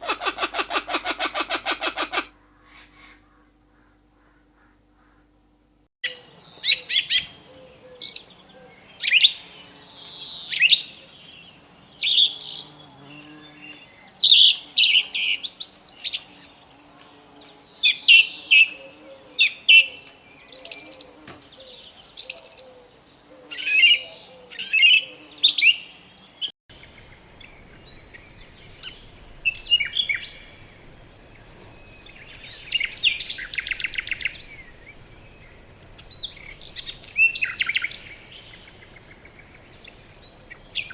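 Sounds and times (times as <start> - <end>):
bird trilling: 6.0 - 11.4, 17.8 - 22.9
birds chirping and whistling: 6.0 - 16.7, 17.8 - 22.9, 23.5 - 40.9.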